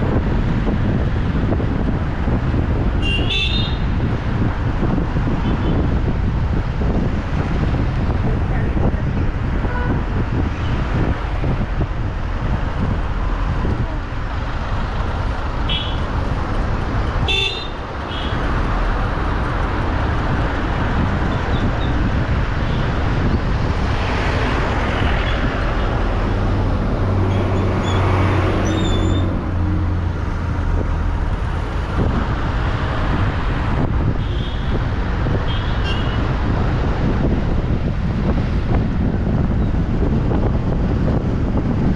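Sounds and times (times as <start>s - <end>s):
road and engine noise: 0.0s - 41.9s
car horn toots: 3.0s - 3.8s, 15.7s - 16.0s, 17.2s - 18.4s, 35.5s - 36.2s.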